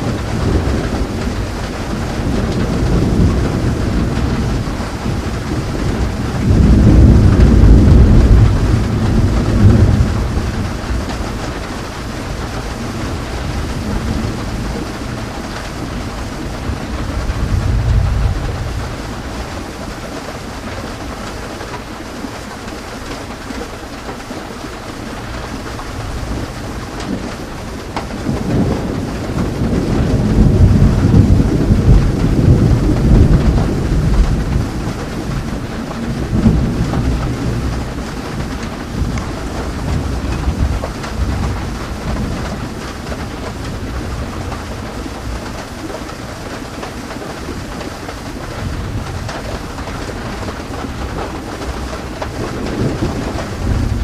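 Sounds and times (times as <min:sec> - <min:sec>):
rolling thunder: 0:00.0 - 0:21.4, 0:25.2 - 0:54.0
rain falling: 0:00.0 - 0:54.0.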